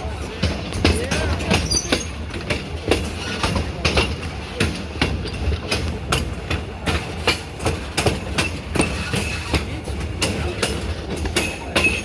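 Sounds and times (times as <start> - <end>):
train wheels clicking over rail joints: 0.0 - 12.0.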